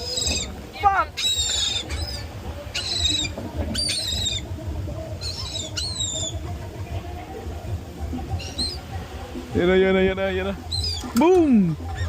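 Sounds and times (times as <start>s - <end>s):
birds squawking: 0.0s - 4.6s, 5.2s - 6.5s, 8.3s - 8.9s, 10.6s - 12.0s
wind rumble on microphone: 0.0s - 12.0s.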